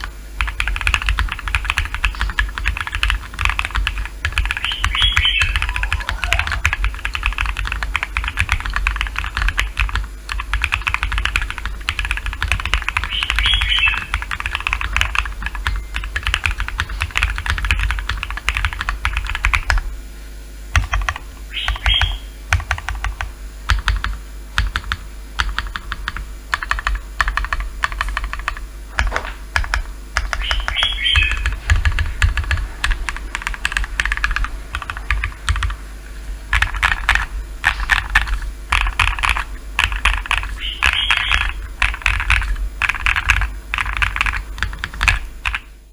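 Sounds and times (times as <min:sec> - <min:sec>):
fast typing on mechanical keyboard: 0:00.0 - 0:19.9, 0:20.7 - 0:35.8, 0:36.5 - 0:45.7.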